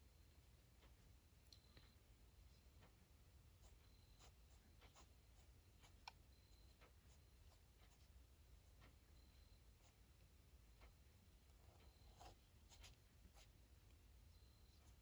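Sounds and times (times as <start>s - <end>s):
pen scratching on paper: 11.6s - 13.6s.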